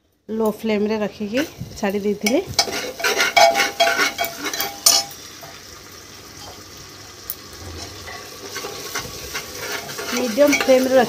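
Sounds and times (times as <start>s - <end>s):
paste sizzling in oil: 1.2s - 11.0s
ladle scraping a pot: 2.5s - 5.2s, 7.6s - 11.0s.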